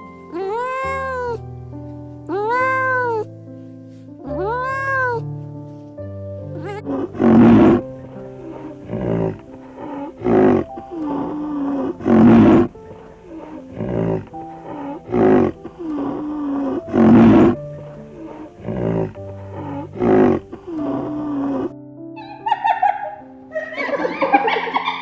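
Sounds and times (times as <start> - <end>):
background music with held notes: 0.0 - 25.0
animal roar: 0.4 - 1.4, 6.6 - 21.7.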